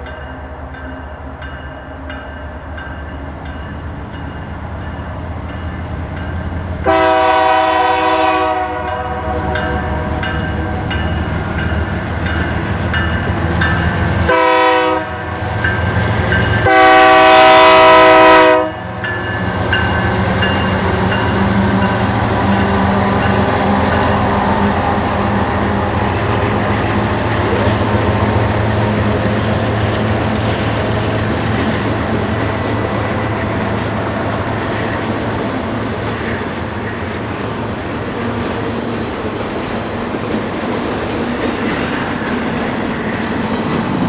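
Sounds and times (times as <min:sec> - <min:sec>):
diesel locomotive rumble: 0:00.0 - 0:44.0
multi-chime train air horn: 0:06.8 - 0:10.9, 0:14.3 - 0:15.9, 0:16.5 - 0:25.8.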